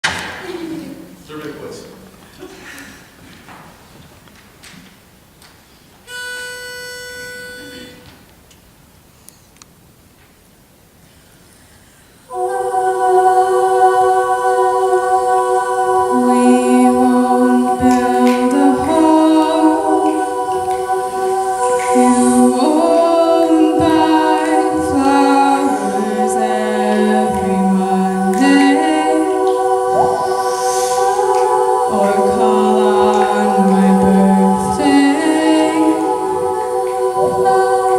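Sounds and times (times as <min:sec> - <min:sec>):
a cappella group singing: 0:12.2 - 0:37.9.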